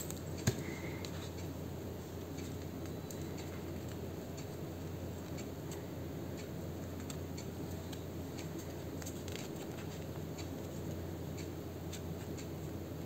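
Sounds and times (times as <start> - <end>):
steady low hum: 0.0 - 13.0
paper and card being handled: 8.6 - 11.0.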